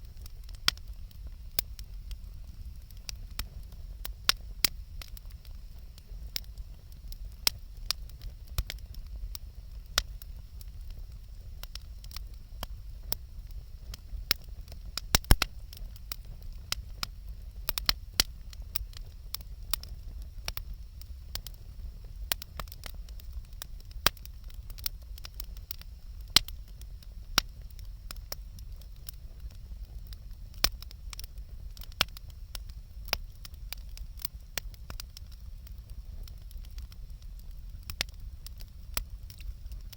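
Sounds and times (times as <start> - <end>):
low steady rumble: 0.0 - 39.9
wood bonfire crackling: 0.0 - 39.9
sharp pops and snaps: 13.9 - 18.9.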